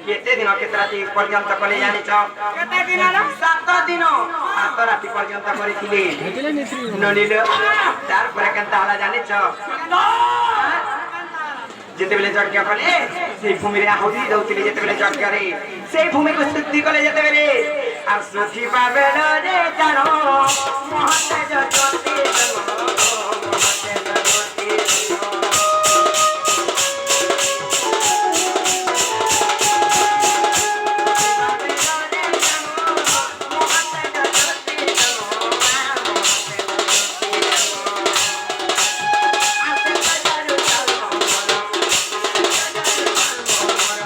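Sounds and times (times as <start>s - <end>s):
fast percussion beat: 19.9s - 44.0s
melody of held notes: 25.6s - 31.6s.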